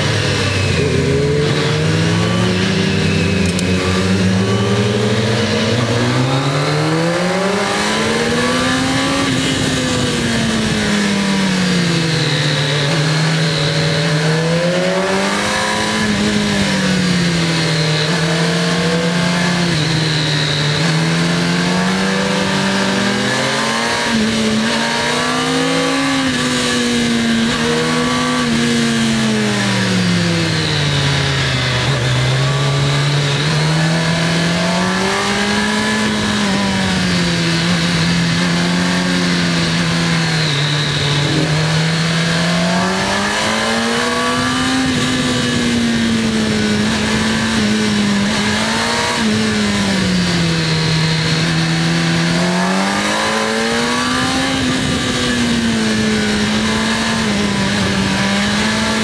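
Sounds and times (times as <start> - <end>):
motorcycle engine revving: 0.0 - 59.0
wind noise: 31.2 - 59.0.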